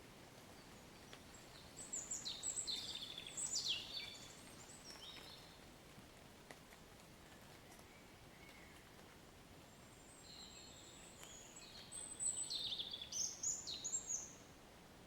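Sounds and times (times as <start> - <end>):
faint hiss of rain: 0.0 - 15.0
songbird chirping: 0.4 - 5.6, 7.6 - 9.0, 9.7 - 14.6.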